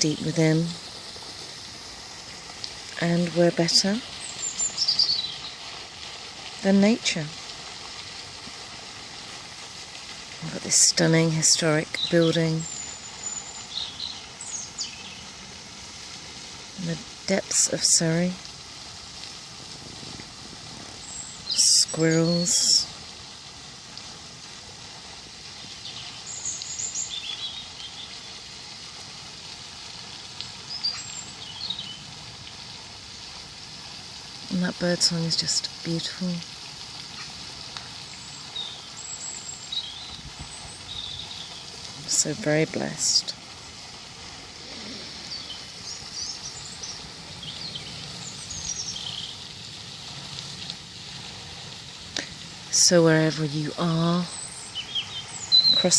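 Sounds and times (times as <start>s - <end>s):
outdoor background hiss: 0.0s - 55.9s
small songbirds chirping: 2.4s - 5.8s, 10.5s - 15.4s, 20.8s - 22.9s, 25.5s - 28.5s, 30.4s - 32.6s, 37.1s - 43.4s, 44.7s - 49.6s, 52.7s - 55.9s.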